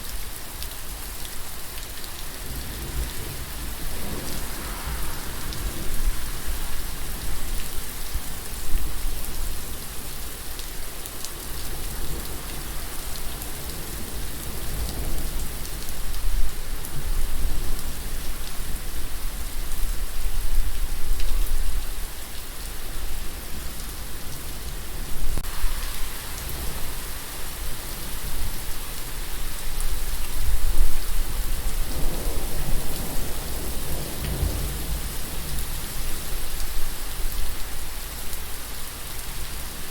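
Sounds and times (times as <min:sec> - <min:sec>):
rain pattering on a surface: 0:00.0 - 0:39.9
low rumble: 0:03.4 - 0:07.5.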